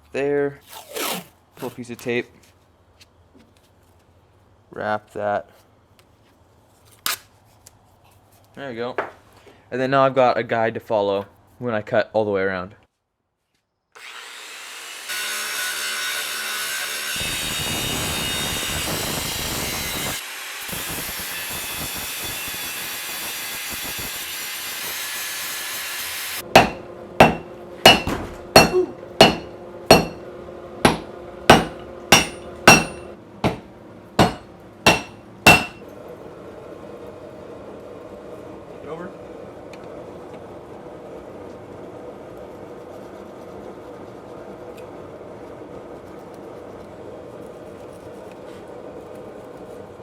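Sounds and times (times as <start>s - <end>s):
steel being cut: 14.0s - 35.8s
hammer striking steel: 26.5s - 30.3s, 30.9s - 35.8s.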